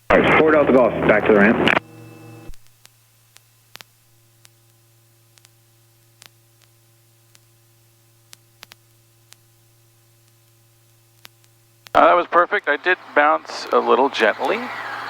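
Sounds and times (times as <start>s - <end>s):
faint low hum: 0.0s - 2.6s, 3.3s - 15.0s.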